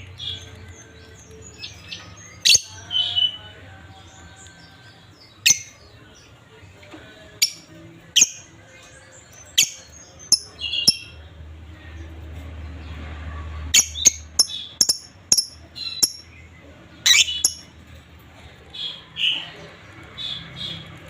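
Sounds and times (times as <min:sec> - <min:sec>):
lovebirds chirping shrilly: 0:13.8 - 0:16.3, 0:17.0 - 0:17.8.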